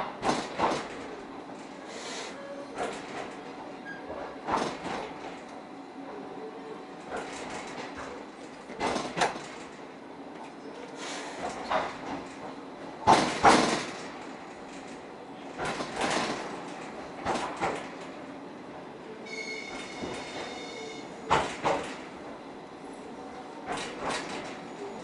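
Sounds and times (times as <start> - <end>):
train wheels clacking over rail joints: 0.0 - 5.6, 7.0 - 18.3, 19.3 - 22.4, 23.6 - 25.0
train rumble: 0.0 - 25.0
high squeal: 19.3 - 21.0.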